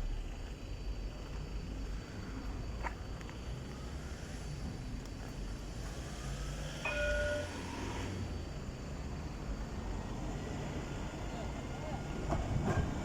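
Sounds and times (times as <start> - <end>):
low train rumble: 0.0 - 13.0.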